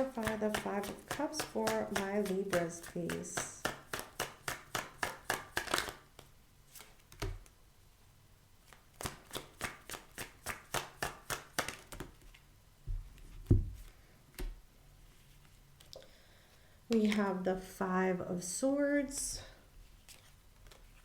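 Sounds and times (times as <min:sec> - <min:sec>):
cards tapped down: 0:00.0 - 0:06.3, 0:08.7 - 0:12.2
cards being shuffled: 0:00.0 - 0:07.5, 0:08.6 - 0:12.4, 0:20.0 - 0:21.0.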